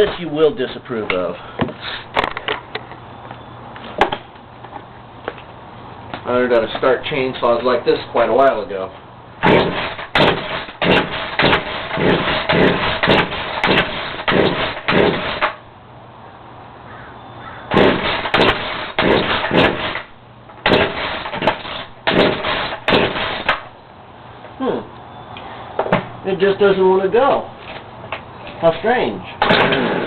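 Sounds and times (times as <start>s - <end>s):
chainsaw engine turning over: 9.4s - 15.6s, 17.7s - 23.7s, 29.4s - 30.0s
chainsaw starter rope pulled: 9.4s - 15.6s, 17.7s - 23.6s.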